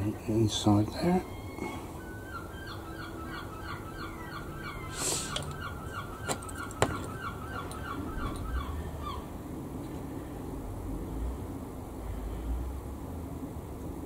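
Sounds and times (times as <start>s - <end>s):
bird chirping: 0.5s - 9.3s
short hiss: 4.9s - 5.4s.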